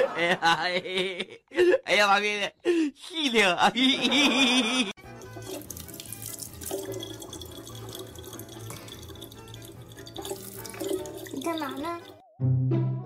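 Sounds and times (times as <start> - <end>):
water running from faucet: 5.0 - 12.2
background music: 5.0 - 13.0
water splashing into plastic bottle: 5.1 - 12.2.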